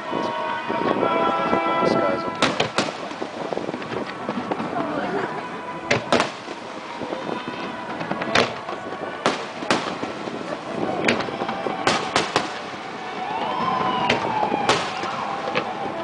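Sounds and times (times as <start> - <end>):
firework shells bursting: 7.9 - 15.7.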